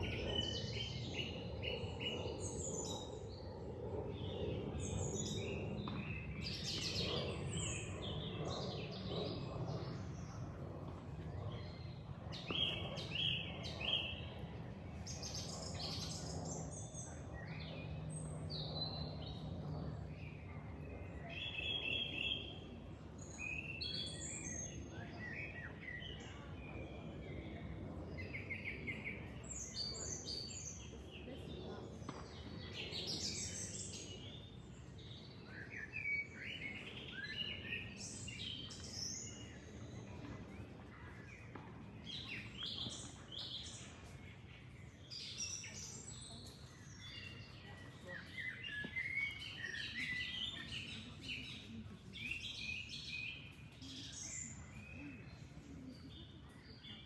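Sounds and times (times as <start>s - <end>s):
small birds chirping: 28.2s - 57.0s.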